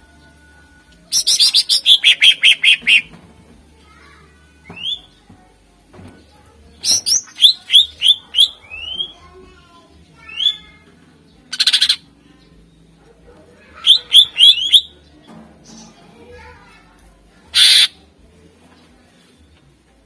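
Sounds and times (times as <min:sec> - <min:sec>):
bird whistling song: 0:01.1 - 0:03.1, 0:04.6 - 0:05.1, 0:06.8 - 0:09.2, 0:13.8 - 0:14.9, 0:17.6 - 0:18.0.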